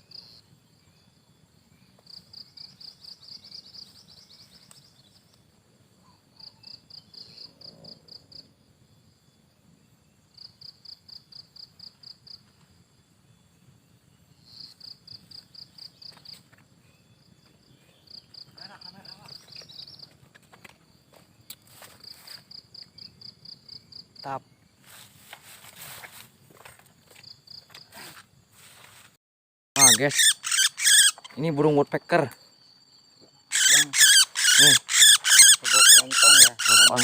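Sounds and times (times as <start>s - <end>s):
faint outdoor background noise: 0.0s - 29.2s, 29.8s - 37.0s
high-pitched chirping pulses: 29.8s - 31.8s, 33.3s - 37.0s.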